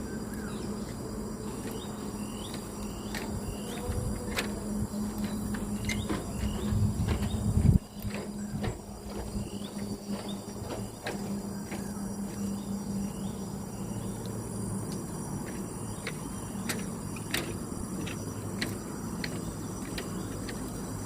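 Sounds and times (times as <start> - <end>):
high insect drone: 0.0 - 21.0
footsteps on a trail: 0.5 - 13.3.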